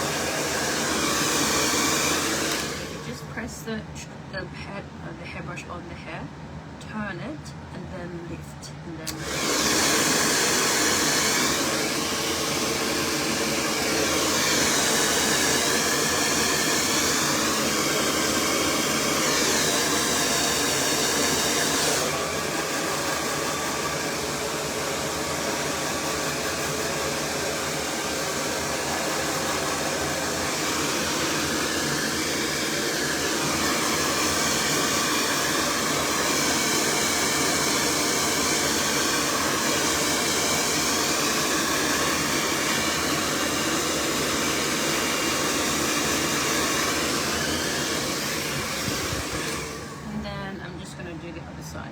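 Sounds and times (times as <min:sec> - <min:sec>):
hair dryer blowing: 0:00.0 - 0:03.9, 0:08.9 - 0:51.4
brush through hair: 0:25.4 - 0:50.0.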